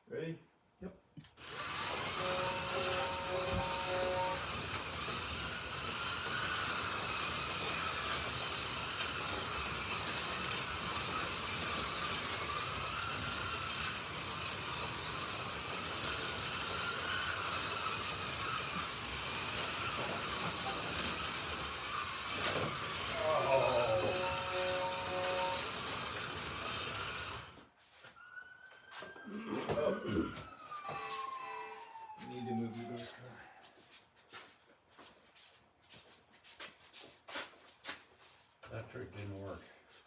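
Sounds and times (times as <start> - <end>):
slot car motors whining: 1.4 - 27.6
electronic start tones: 23.2 - 25.8.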